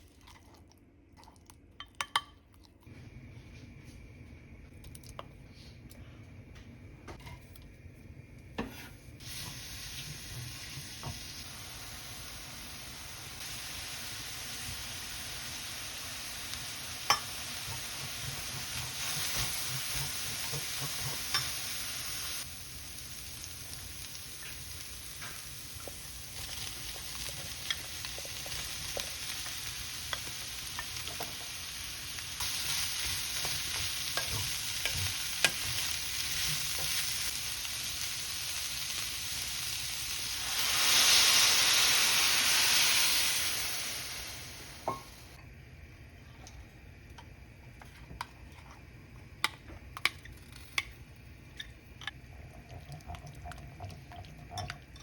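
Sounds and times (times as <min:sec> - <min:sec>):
food sizzling in a pan: 0:09.2 - 0:45.4.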